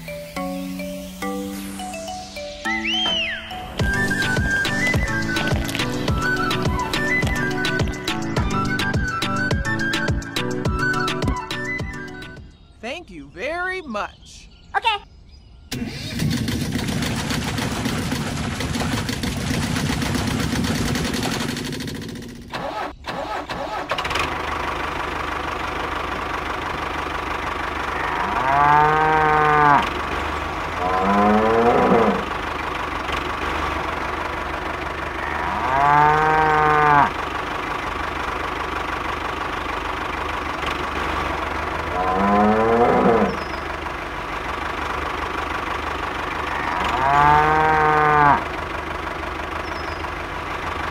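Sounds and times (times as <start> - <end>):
small tractor engine running: 3.0 - 12.5, 15.7 - 50.9
cows mooing: 27.8 - 30.0, 30.6 - 32.3, 35.1 - 37.2, 41.7 - 43.4, 46.4 - 48.5.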